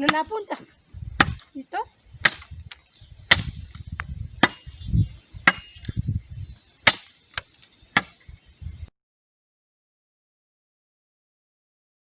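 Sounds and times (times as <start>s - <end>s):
machete chopping wood: 0.0s - 0.5s, 1.2s - 1.5s, 2.2s - 4.8s, 5.4s - 6.0s, 6.8s - 8.3s.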